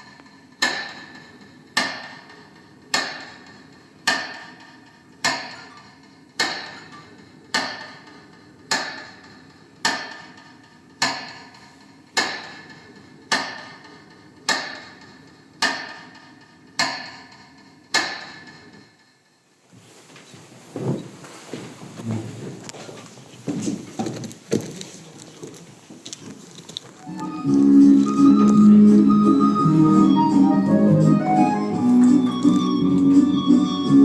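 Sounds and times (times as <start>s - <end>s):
metronome ringing knocks: 27.0s - 34.0s.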